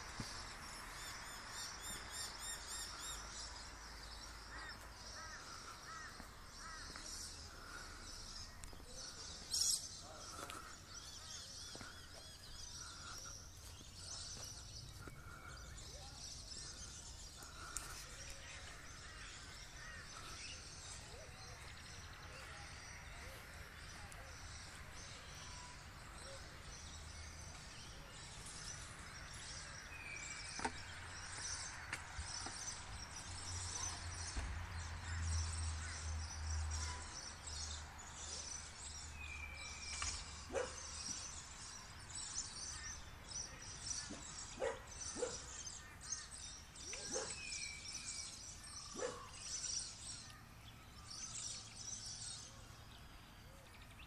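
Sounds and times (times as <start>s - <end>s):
many birds chirping: 0.0s - 54.0s.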